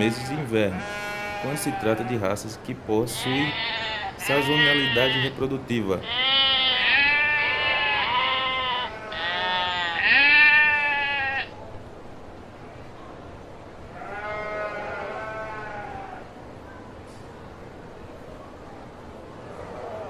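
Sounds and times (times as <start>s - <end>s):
sheep bleating: 0.0s - 11.5s, 14.0s - 16.3s.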